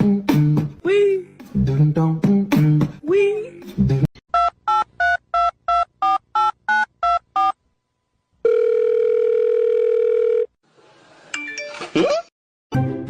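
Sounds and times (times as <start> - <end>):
telephone ringing tone: 8.4 - 10.6.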